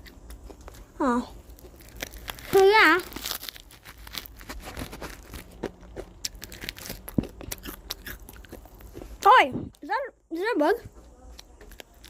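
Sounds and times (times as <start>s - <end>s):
granola bar crunching: 0.0s - 9.2s, 11.2s - 12.0s
plastic wrapper crackling: 0.6s - 8.0s.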